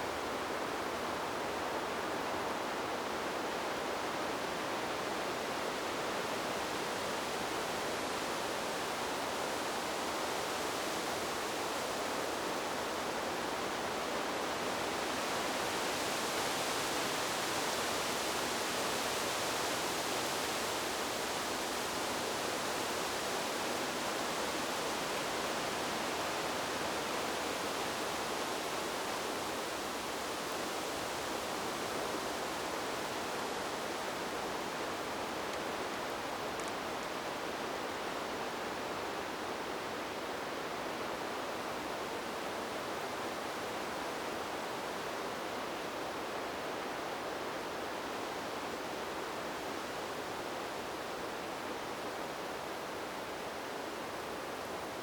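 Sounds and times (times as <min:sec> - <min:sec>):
wind blowing through trees: 0:00.0 - 0:55.0.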